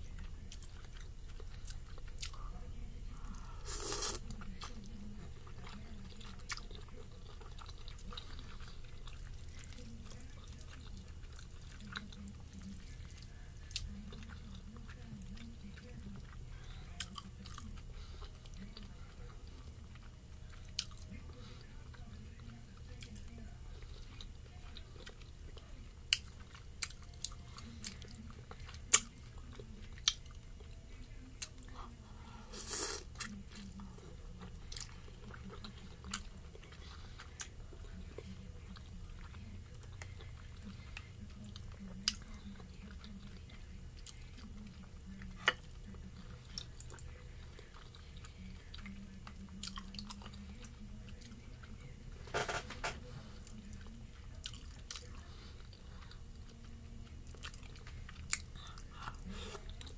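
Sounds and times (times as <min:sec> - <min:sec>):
chewing noodles and dumplings: 0:00.0 - 0:59.9
faint low hum: 0:00.0 - 0:59.9.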